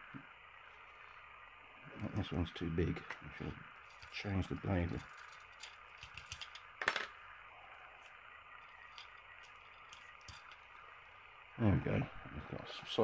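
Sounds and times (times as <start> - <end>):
hand tools clicking and tapping: 4.9 - 6.7, 8.9 - 10.6.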